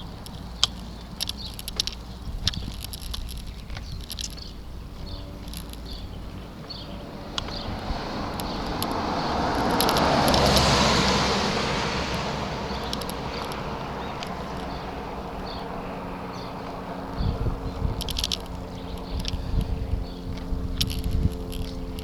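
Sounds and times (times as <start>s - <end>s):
car passing by: 6.6s - 18.0s.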